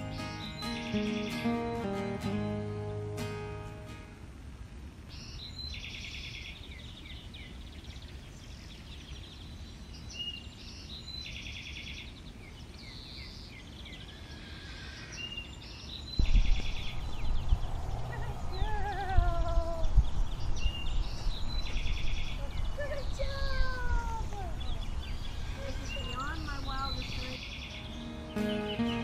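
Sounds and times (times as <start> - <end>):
songbirds singing: 0.0 - 4.0, 5.0 - 29.0
loud low rumble: 16.2 - 21.5
wind rumble on microphone: 16.2 - 27.4.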